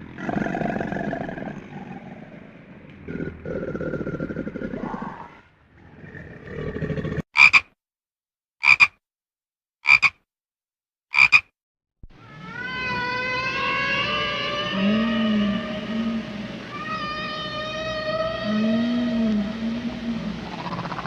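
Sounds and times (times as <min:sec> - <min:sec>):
low rough animal sound: 0:00.0 - 0:07.2, 0:12.2 - 0:21.0
frog croaking: 0:07.4 - 0:07.7, 0:08.6 - 0:09.0, 0:09.8 - 0:10.2, 0:11.1 - 0:11.5, 0:20.4 - 0:21.0
long wavering animal call: 0:12.2 - 0:21.0.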